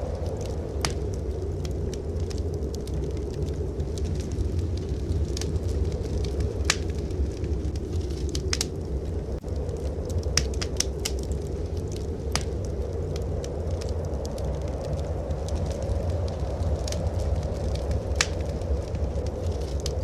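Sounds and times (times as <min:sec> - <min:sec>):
blizzard wind rumbling: 0:00.0 - 0:20.0
wood fire crackling: 0:00.0 - 0:20.0.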